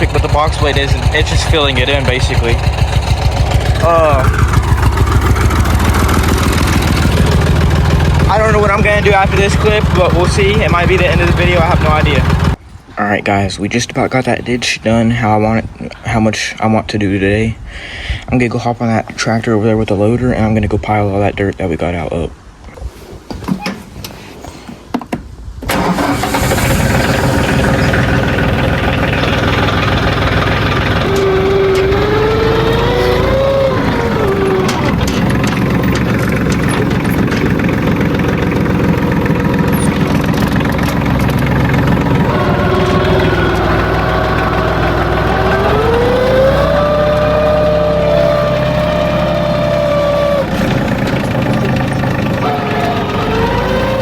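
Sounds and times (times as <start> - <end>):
tractor engine running: 0.0 - 14.7, 25.6 - 54.0.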